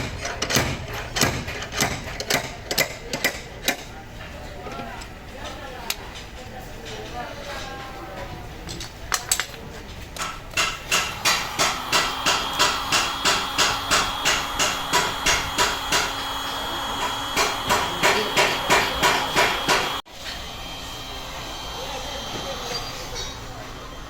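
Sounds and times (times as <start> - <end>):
hammer beating sheet metal: 0.0 - 3.4, 10.2 - 16.2, 16.9 - 20.0.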